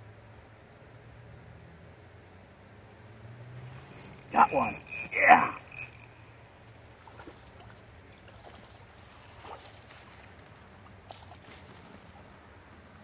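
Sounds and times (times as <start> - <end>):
soft splashes: 6.9 - 12.5.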